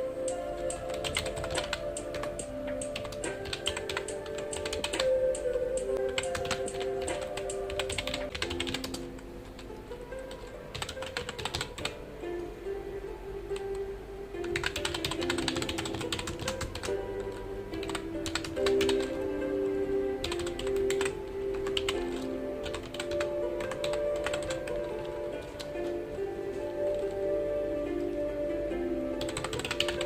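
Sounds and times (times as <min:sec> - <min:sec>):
soft background music: 0:00.0 - 0:30.0
computer keyboard typing: 0:00.3 - 0:09.0, 0:10.7 - 0:12.0, 0:14.5 - 0:19.2, 0:20.2 - 0:25.7, 0:29.2 - 0:30.0.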